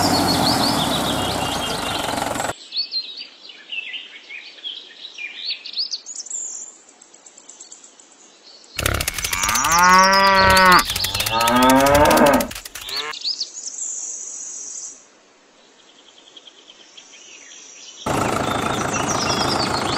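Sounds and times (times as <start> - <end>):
engine running: 0.0 - 2.5, 8.8 - 13.1, 18.1 - 19.9
bird chirps: 8.8 - 13.1, 18.2 - 19.9
cow mooing: 8.8 - 13.1
high steady trill: 8.8 - 13.1.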